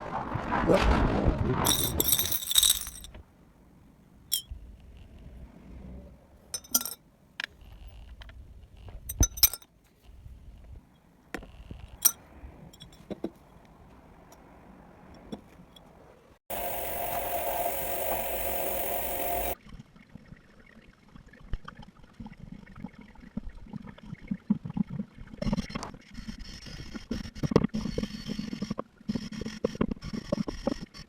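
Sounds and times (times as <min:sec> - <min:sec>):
small metal parts clinking: 0:01.7 - 0:03.2, 0:04.3 - 0:04.5, 0:06.6 - 0:07.0, 0:09.1 - 0:09.7, 0:16.6 - 0:19.6.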